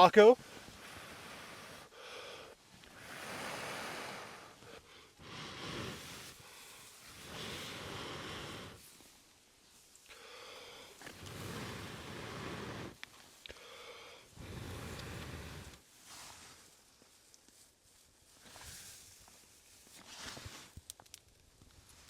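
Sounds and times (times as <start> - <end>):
person blowing steady breaths: 0.0 - 17.0.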